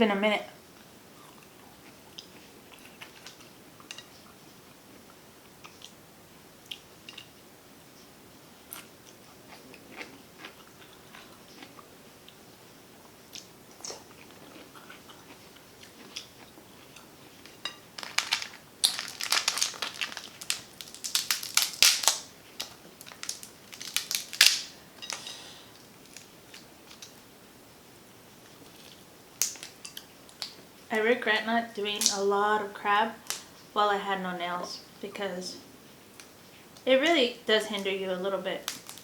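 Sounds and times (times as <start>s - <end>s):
person chewing: 8.7s - 12.4s, 13.3s - 25.5s
crab shell cracking: 18.0s - 25.3s, 29.4s - 30.5s, 38.7s - 39.0s.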